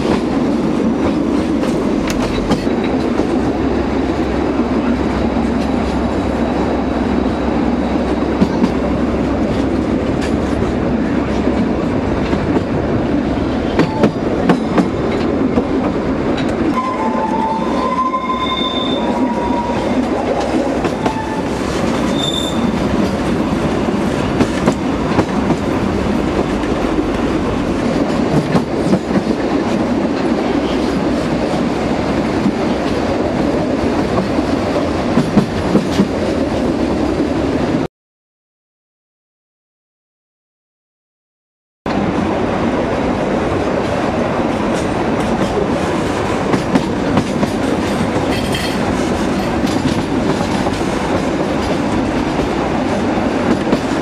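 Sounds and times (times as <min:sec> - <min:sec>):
train wheels clicking over rail joints: 0:00.0 - 0:03.5, 0:13.6 - 0:16.8, 0:20.0 - 0:31.7, 0:44.6 - 0:54.0
high wheel squeals: 0:16.8 - 0:20.0, 0:22.1 - 0:22.8.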